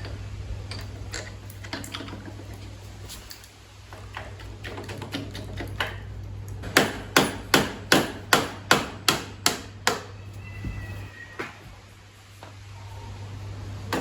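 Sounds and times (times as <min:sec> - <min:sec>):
hammer striking: 0:06.6 - 0:10.1.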